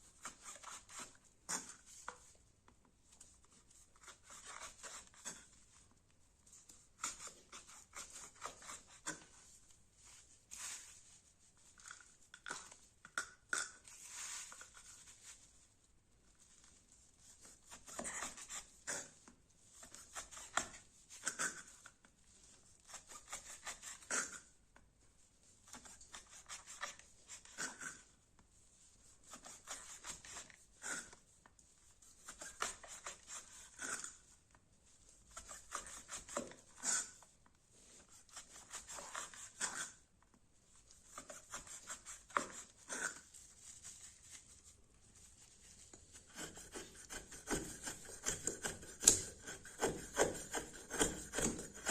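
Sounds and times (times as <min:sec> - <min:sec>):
knife scraping wood: 0:00.0 - 0:02.4, 0:03.7 - 0:05.6, 0:06.7 - 0:09.5, 0:17.2 - 0:22.0, 0:22.8 - 0:24.6, 0:25.6 - 0:28.2, 0:29.2 - 0:31.3, 0:32.0 - 0:34.3, 0:35.3 - 0:40.0, 0:40.8 - 0:51.9.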